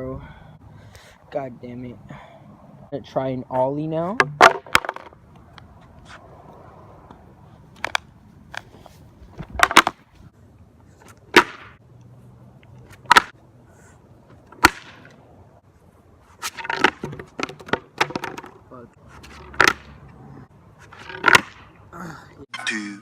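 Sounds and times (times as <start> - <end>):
skateboard deck slapping ground: 4.2 - 5.2, 7.7 - 10.2, 11.0 - 11.8, 12.8 - 13.4, 14.3 - 15.2, 16.2 - 20.0, 20.8 - 21.8.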